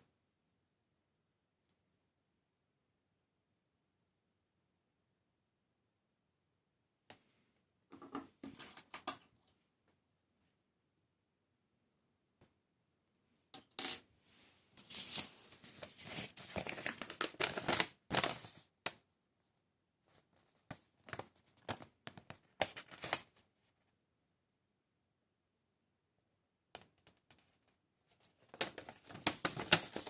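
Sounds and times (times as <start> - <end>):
small clicks and taps: 26.7 - 27.8.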